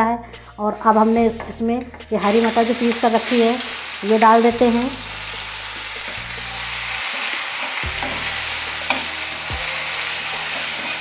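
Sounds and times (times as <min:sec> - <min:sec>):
peas sizzling in hot oil: 0:02.2 - 0:11.0.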